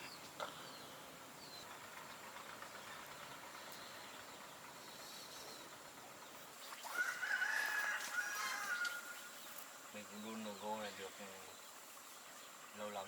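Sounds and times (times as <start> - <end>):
rooster crowing: 6.9 - 9.2.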